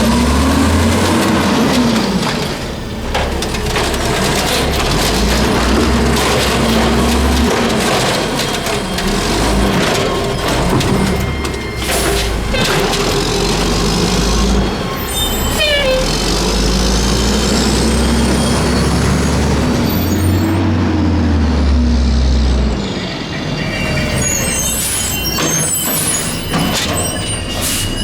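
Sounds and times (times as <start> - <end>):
loader arm squeaks: 4.0 - 20.6, 22.8 - 28.0.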